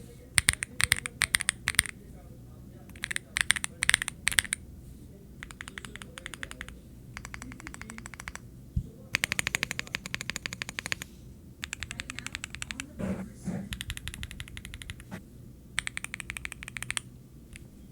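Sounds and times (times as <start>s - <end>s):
mechanical keyboard typing: 0.4s - 1.9s, 2.9s - 4.6s, 5.4s - 8.4s, 11.6s - 12.8s, 15.8s - 17.6s.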